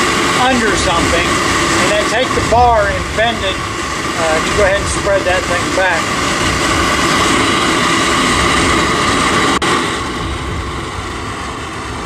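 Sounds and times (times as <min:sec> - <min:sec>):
gas forge burner rushing: 0:00.0 - 0:12.0.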